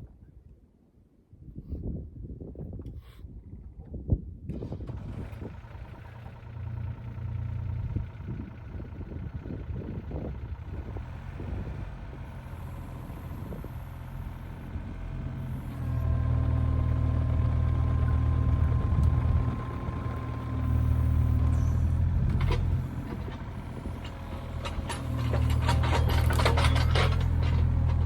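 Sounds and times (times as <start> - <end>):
excavator diesel engine revving: 4.9 - 28.0
hydraulic whine: 11.2 - 28.0.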